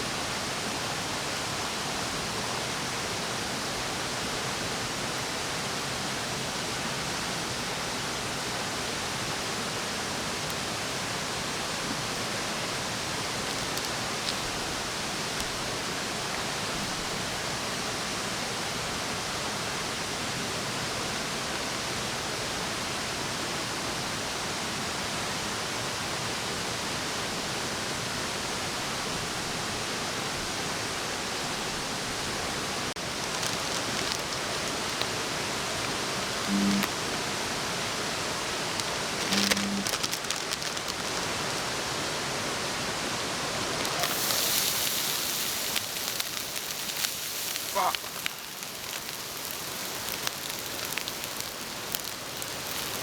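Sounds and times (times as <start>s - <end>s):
faint ticks: 36.4s - 36.9s, 39.2s - 40.0s.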